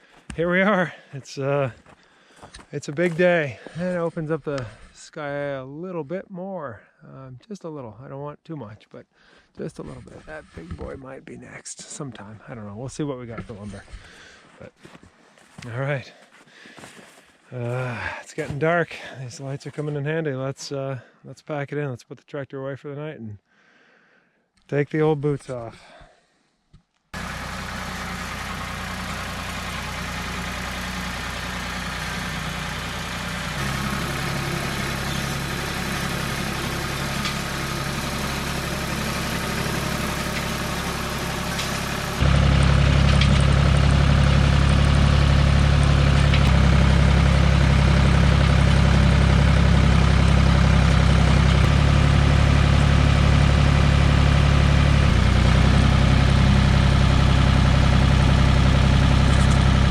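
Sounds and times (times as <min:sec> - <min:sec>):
tractor engine droning: 0:27.2 - 0:59.9.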